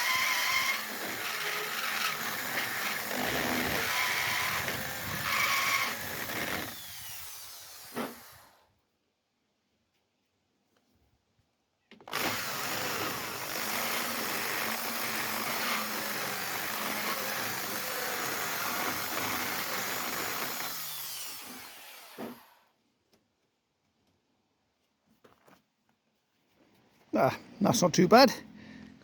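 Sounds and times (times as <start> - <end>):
power drill grinding metal: 0.0 - 8.6, 12.1 - 22.6.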